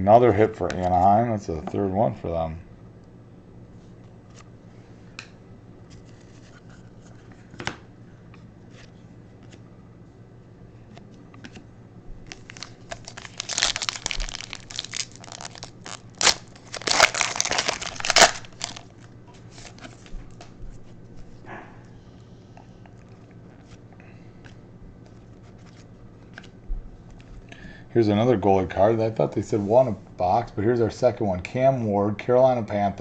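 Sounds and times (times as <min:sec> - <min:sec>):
foil wrapper tearing and crinkling: 0:12.2 - 0:19.0.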